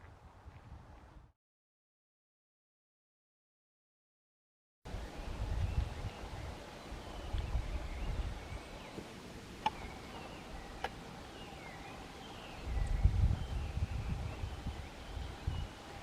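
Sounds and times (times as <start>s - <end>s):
low wind: 0.0s - 1.4s, 4.9s - 16.0s
small birds chirping: 4.9s - 16.0s.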